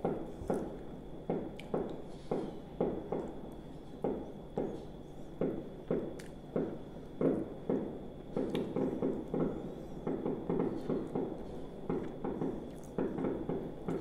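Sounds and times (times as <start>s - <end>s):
person chewing wetly: 6.2s - 6.5s, 11.4s - 13.1s.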